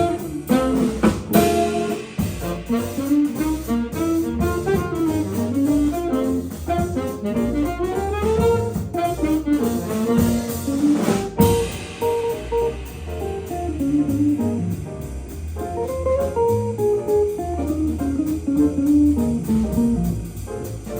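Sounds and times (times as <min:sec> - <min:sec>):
jazz band playing: 0:00.0 - 0:20.9
cymbal crash: 0:01.0 - 0:04.1, 0:11.0 - 0:15.4.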